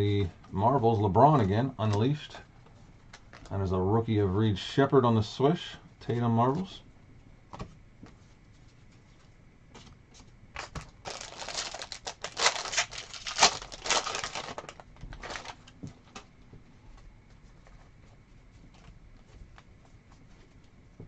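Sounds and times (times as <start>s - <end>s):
foil wrapper tearing and crinkling: 10.6s - 15.6s.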